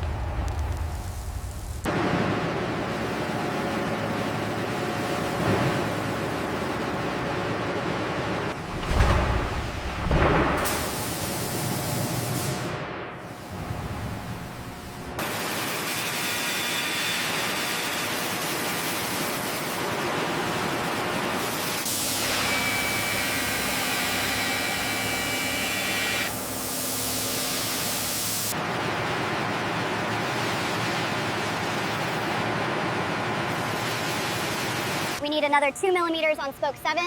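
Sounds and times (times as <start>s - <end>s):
industrial rushing hiss: 9.6s - 16.5s.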